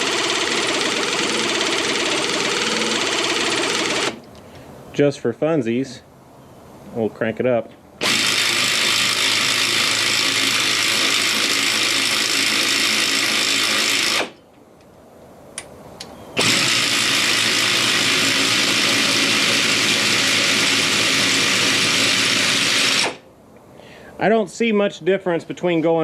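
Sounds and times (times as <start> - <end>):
pneumatic air ratchet spinning: 0.0 - 4.2, 8.0 - 14.4, 16.4 - 23.2.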